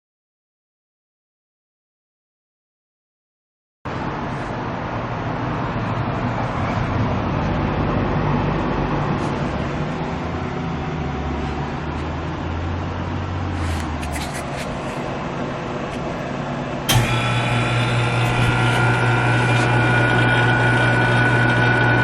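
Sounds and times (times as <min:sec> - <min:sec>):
motor running: 0:16.9 - 0:22.0.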